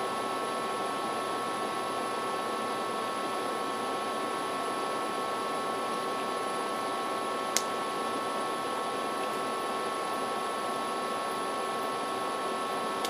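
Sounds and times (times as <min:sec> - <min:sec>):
faint electrical whine: 0:00.0 - 0:13.0
sharp click: 0:07.5 - 0:07.7.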